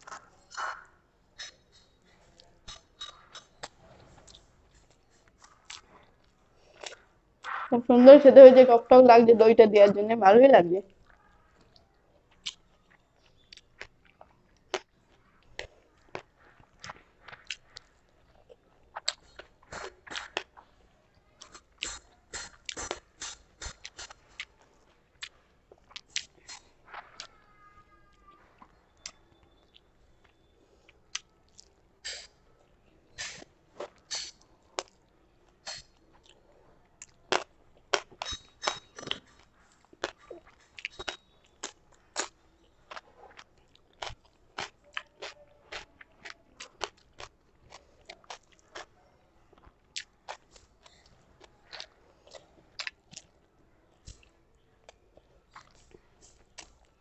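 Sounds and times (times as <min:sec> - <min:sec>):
wet chewing: 0:00.0 - 0:07.6, 0:10.9 - 0:57.0
lip smacks and clicks: 0:21.4 - 0:24.6.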